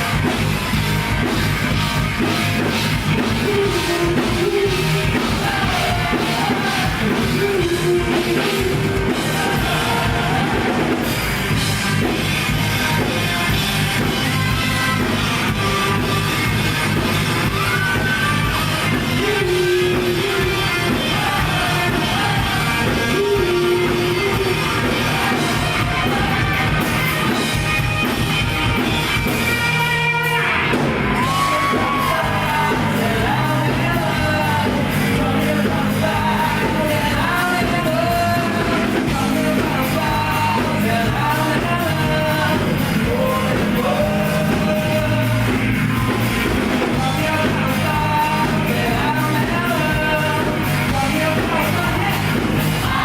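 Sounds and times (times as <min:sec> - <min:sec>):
rock band playing live: 0:00.0 - 0:53.0
lead vocal singing: 0:02.6 - 0:12.2, 0:17.6 - 0:27.4, 0:31.0 - 0:53.0.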